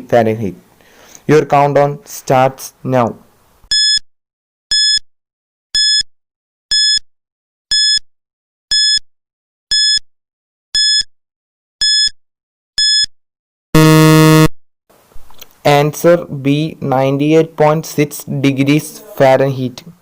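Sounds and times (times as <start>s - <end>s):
low buzzer tone: 13.8s - 14.5s.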